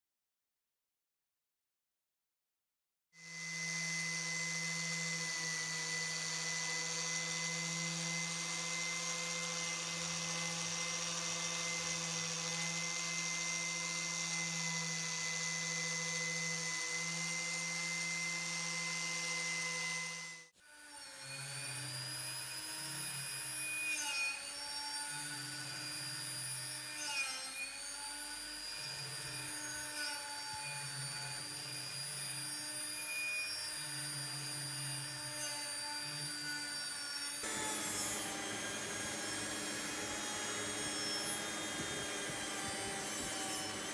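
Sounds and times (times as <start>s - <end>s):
motor drone: 3.2s - 20.5s, 37.3s - 43.9s
power tool whining: 3.2s - 43.9s.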